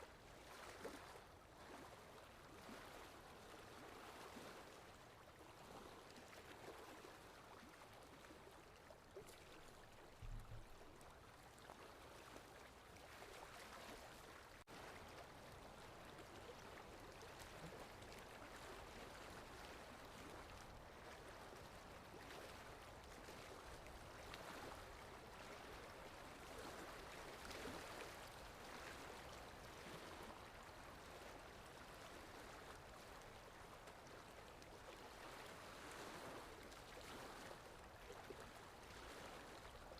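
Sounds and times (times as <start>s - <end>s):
low thump: 10.2s - 10.7s.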